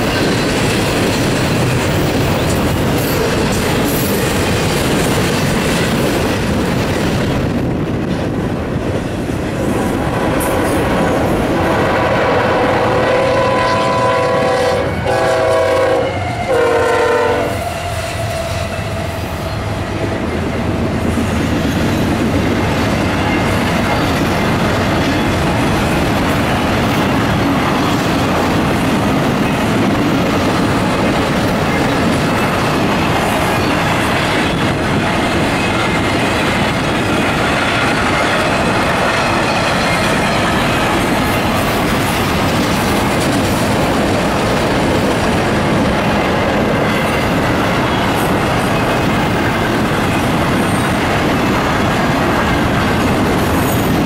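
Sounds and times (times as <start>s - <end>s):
train wheels rumbling on rails: 0.0s - 54.0s
diesel locomotive horn: 11.5s - 20.0s.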